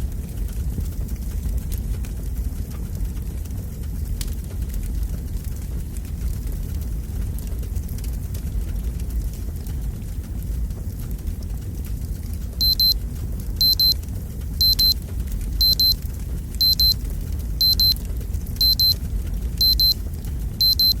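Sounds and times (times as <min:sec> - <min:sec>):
fireplace logs burning: 0:00.0 - 0:21.0
digital alarm double beeps: 0:12.6 - 0:13.0, 0:13.6 - 0:14.0, 0:14.6 - 0:15.0, 0:15.6 - 0:16.0, 0:16.6 - 0:17.0, 0:17.6 - 0:18.0, 0:18.6 - 0:19.0, 0:19.6 - 0:20.0, 0:20.6 - 0:21.0.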